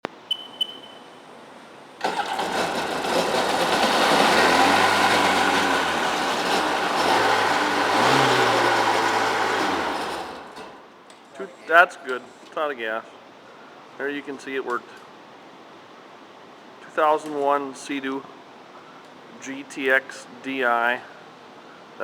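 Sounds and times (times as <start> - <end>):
short electronic beeps: 0.2 - 1.2
two-stroke engine running: 2.0 - 10.8.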